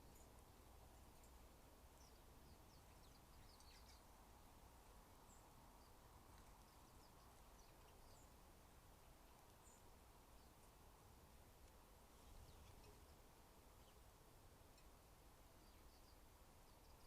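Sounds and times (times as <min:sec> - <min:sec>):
low steady hum: 0:00.0 - 0:17.0
small birds chirping: 0:00.0 - 0:17.0.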